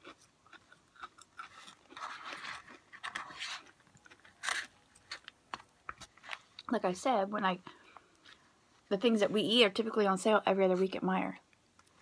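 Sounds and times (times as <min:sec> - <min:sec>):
person chewing crunchy food: 0:00.0 - 0:06.7.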